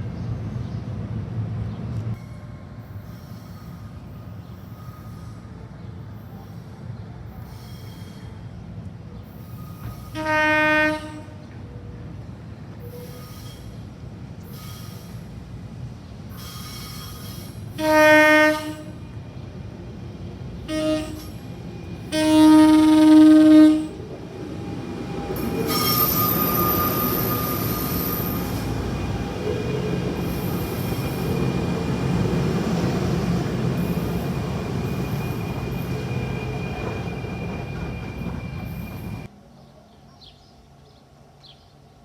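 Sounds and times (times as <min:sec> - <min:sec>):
train wheels rumbling on rail: 0:00.0 - 0:39.3
high squealing wheels: 0:02.3 - 0:06.6, 0:07.3 - 0:08.6, 0:09.2 - 0:10.3, 0:12.8 - 0:15.3, 0:16.3 - 0:17.8, 0:19.9 - 0:39.3
train horn blasting: 0:10.0 - 0:11.5, 0:17.7 - 0:19.2, 0:20.6 - 0:21.4, 0:22.0 - 0:24.1.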